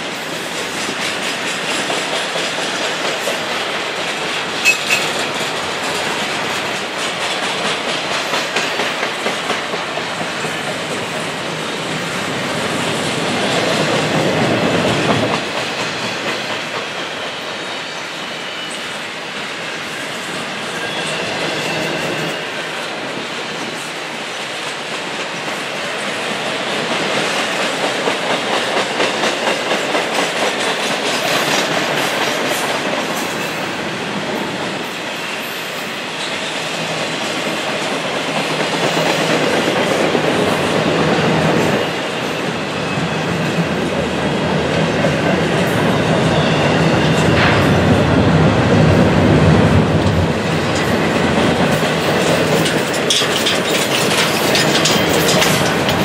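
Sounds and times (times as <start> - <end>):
train wheels rumbling on rails: 0.0 - 56.0
chain dragging under train: 50.5 - 56.0.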